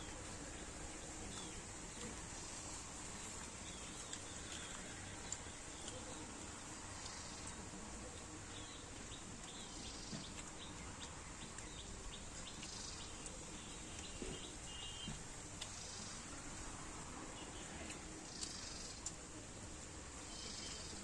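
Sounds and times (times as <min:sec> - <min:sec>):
outdoor background noise: 0:00.0 - 0:21.0
small bird chirping: 0:08.5 - 0:16.3, 0:20.2 - 0:21.0.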